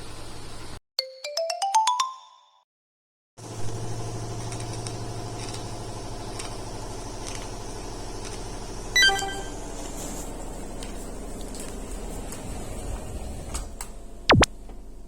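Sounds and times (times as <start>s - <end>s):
washing machine motor hum: 3.4s - 15.0s.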